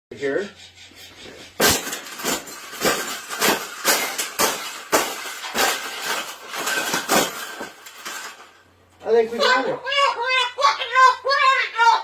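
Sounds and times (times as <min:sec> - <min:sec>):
metal clattering: 0:01.2 - 0:08.7.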